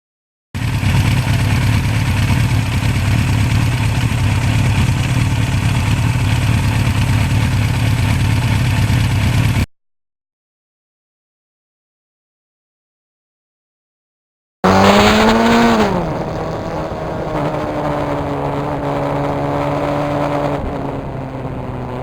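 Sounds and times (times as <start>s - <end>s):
motorcycle engine running: 0.6s - 9.7s, 14.6s - 22.0s.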